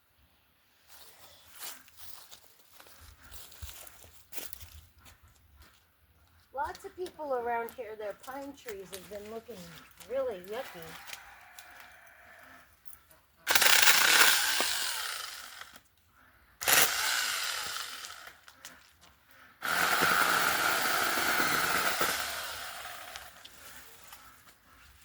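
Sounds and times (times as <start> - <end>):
mini chainsaw cutting branches: 8.3 - 11.8, 13.4 - 15.9, 16.6 - 18.8, 19.6 - 24.4.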